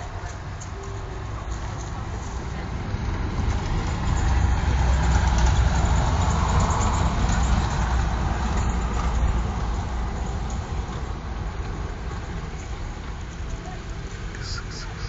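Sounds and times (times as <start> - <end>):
motor vehicle passing: 0.0 - 15.0.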